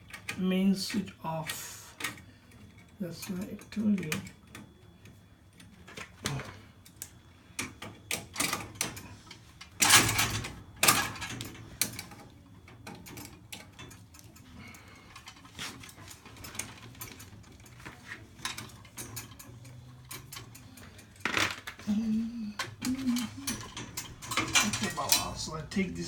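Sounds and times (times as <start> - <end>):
small parts and tools clicking: 0.0 - 26.0
tools clattering: 7.6 - 26.0.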